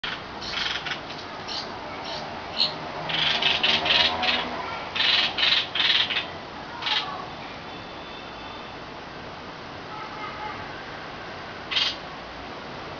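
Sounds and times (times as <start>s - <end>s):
young birds begging calls: 0.0s - 7.2s, 11.7s - 12.0s.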